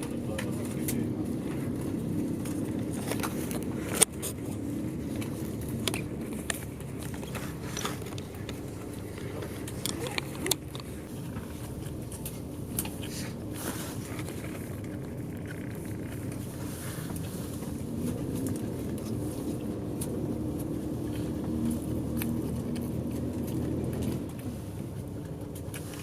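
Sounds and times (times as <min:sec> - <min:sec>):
bus engine humming: 0:00.0 - 0:26.0
clicks and rattles: 0:02.4 - 0:11.1.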